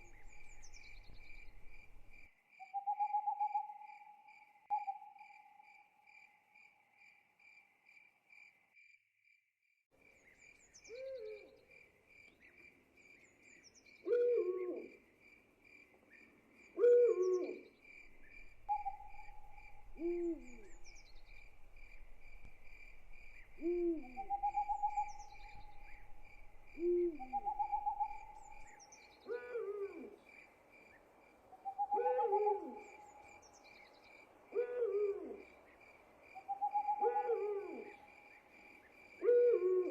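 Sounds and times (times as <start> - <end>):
crickets chirping: 0.0 - 9.0, 14.8 - 39.9
owl hooting: 10.9 - 11.5, 14.0 - 15.0, 16.8 - 17.6, 18.3 - 22.6, 23.2 - 30.2, 31.6 - 33.3, 34.5 - 35.5, 36.4 - 38.1, 39.2 - 39.9.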